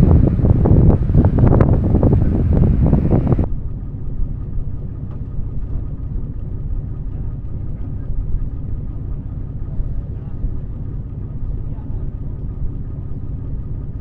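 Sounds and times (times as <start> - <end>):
wind buffeting microphone: 0.0 - 3.5
low vehicle rumble: 0.0 - 14.0.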